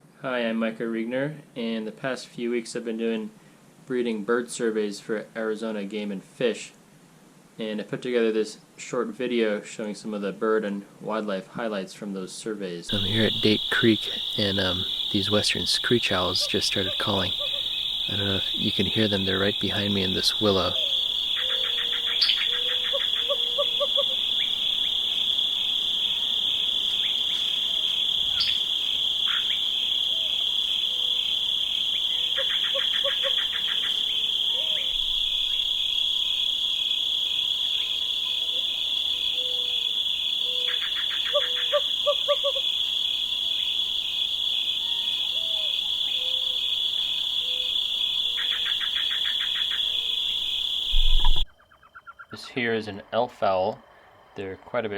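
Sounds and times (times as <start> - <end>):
owls hooting with trills: 12.9 - 52.4
high-pitched insect chorus: 12.9 - 54.9.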